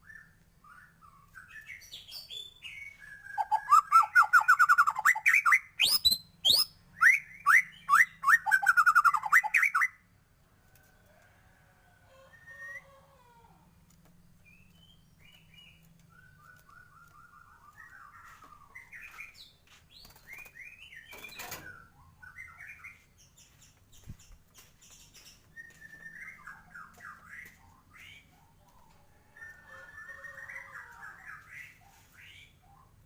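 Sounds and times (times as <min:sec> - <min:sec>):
bird singing whistled song: 0:00.0 - 0:10.0, 0:14.4 - 0:23.0, 0:24.9 - 0:28.2.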